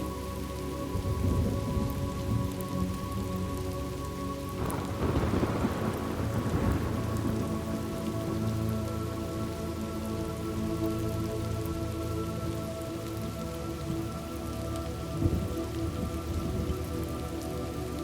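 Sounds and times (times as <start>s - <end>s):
drone of sustained tones: 0.0s - 18.0s
rain falling: 0.0s - 18.0s
thunder rumbling: 1.0s - 2.6s, 4.6s - 9.3s, 15.2s - 17.3s
thunderclap: 4.6s - 8.1s.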